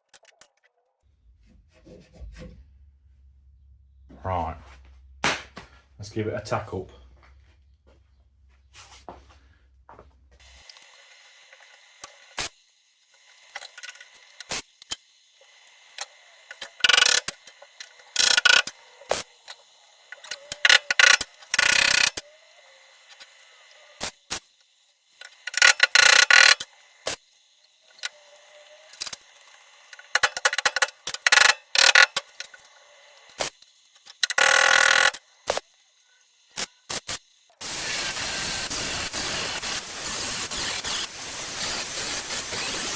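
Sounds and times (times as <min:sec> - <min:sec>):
welder arc bursts: 0:10.4 - 0:42.9.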